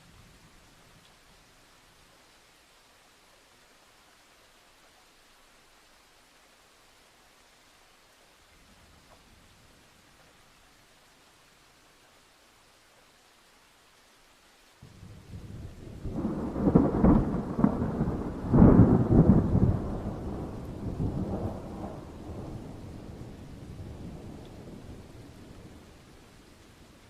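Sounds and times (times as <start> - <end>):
faint steady rain: 0.0 - 27.0
thunder rumbling and crackling: 14.9 - 26.2.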